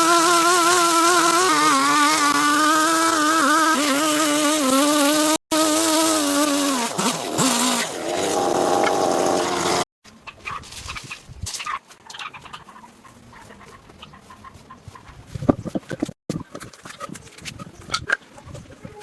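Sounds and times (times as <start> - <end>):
small engine running fast: 0.0 - 9.9.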